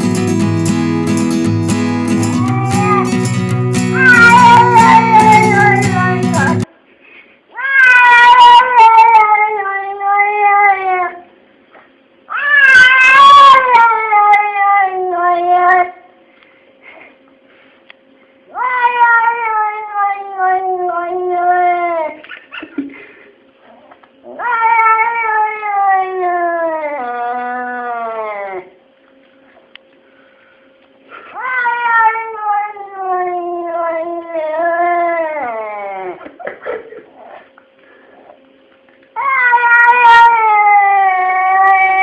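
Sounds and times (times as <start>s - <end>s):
cat meowing: 2.2s - 3.2s, 3.9s - 6.6s, 7.6s - 11.1s, 12.3s - 15.8s, 18.6s - 22.1s, 24.3s - 28.6s, 31.4s - 35.6s, 39.2s - 42.0s.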